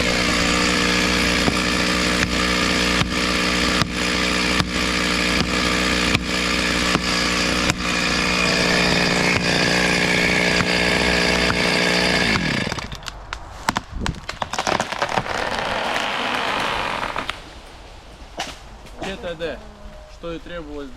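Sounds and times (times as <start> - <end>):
chainsaw cutting: 0.0 - 13.1, 14.4 - 17.4.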